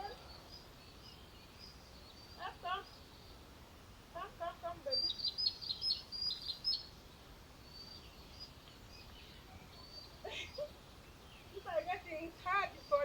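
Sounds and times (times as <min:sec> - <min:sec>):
outdoor background noise: 0:00.0 - 0:13.0
small bird chirping: 0:04.9 - 0:06.9.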